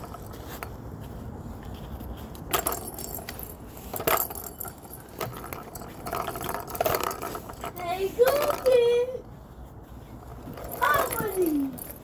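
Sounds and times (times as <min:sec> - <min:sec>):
low steady background noise: 0:00.0 - 0:12.0
short jingling rattles: 0:02.4 - 0:09.2, 0:10.2 - 0:12.0.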